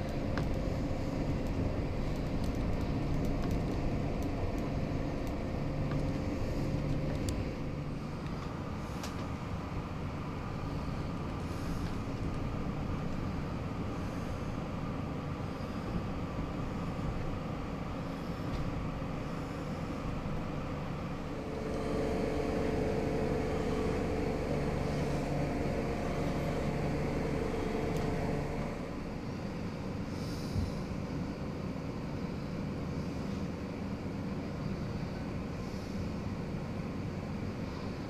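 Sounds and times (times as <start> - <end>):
train rumble: 0.0 - 38.0
train whining tone: 21.3 - 29.1.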